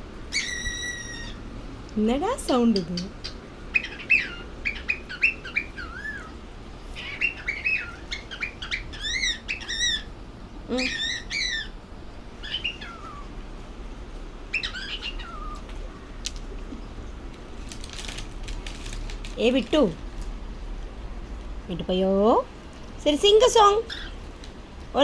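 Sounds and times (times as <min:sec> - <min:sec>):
cockatiel chirping and whistling: 0:00.3 - 0:01.4, 0:03.7 - 0:06.3, 0:07.0 - 0:10.1, 0:10.8 - 0:11.8, 0:12.4 - 0:13.2, 0:14.5 - 0:15.6.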